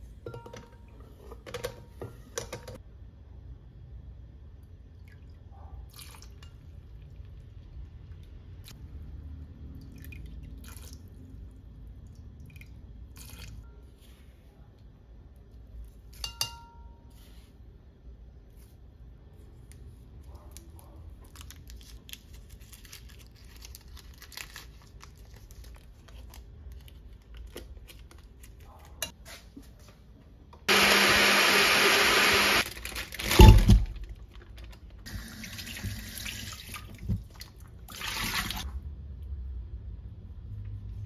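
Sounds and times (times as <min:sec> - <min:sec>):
foil wrapper crinkling: 0:21.3 - 0:28.7, 0:32.6 - 0:35.1.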